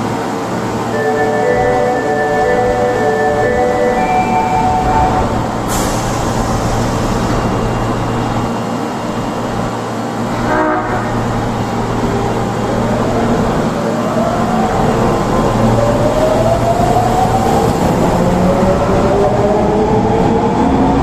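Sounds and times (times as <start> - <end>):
subway train horn blast: 0.9 - 6.1, 10.3 - 11.5.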